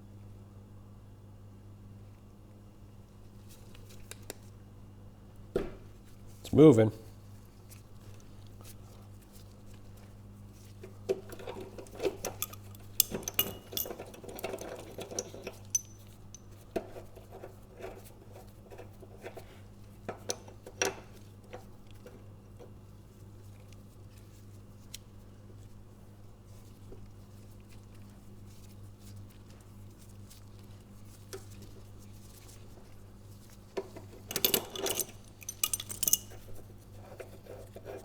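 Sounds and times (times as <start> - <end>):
metallic clicks and clinks: 11.4 - 16.5, 34.2 - 36.5.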